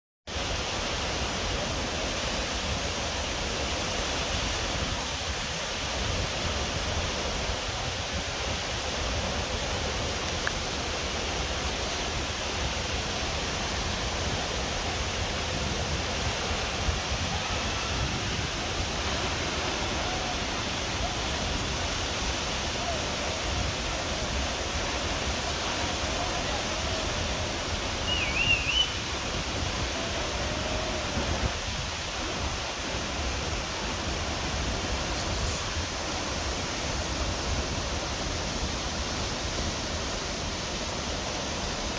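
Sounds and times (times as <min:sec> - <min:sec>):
waterfall rushing: 0:00.3 - 0:41.9
warbling high-pitched call: 0:27.8 - 0:29.3.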